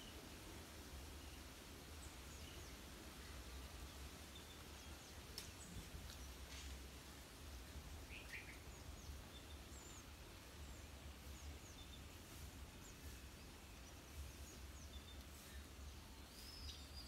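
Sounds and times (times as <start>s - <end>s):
faint high bird chirps: 8.1s - 17.0s.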